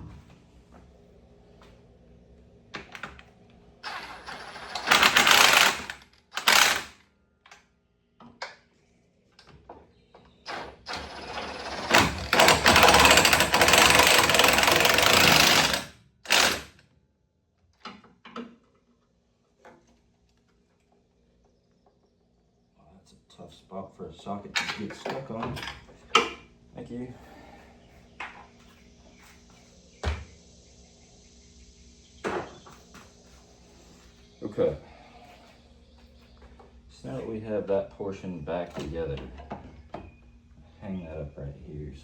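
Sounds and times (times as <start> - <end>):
impact wrench hammering on a nut: 12.0 - 16.7.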